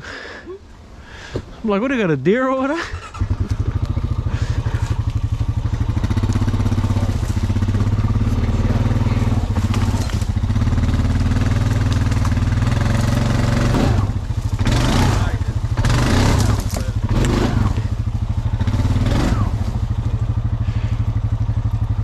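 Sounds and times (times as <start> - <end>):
atv engine running: 0.5 - 22.0.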